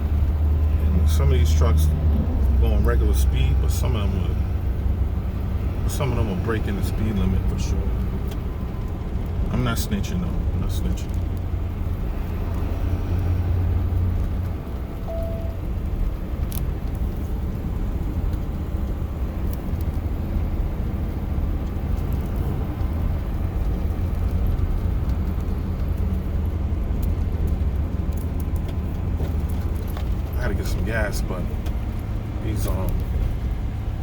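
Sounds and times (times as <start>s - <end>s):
truck engine and road rumble: 0.0s - 34.0s.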